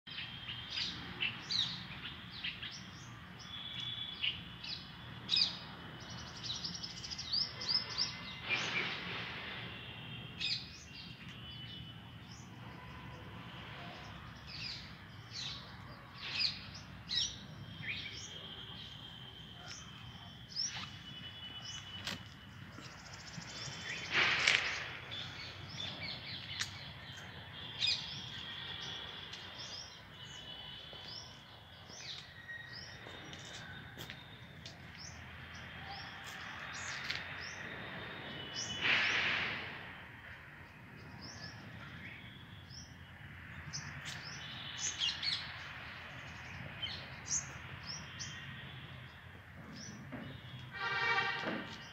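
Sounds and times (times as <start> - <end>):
birds chirping and trilling: 14.3 - 37.7, 38.4 - 39.4
loud hissing burst: 23.6 - 25.5, 38.6 - 40.2.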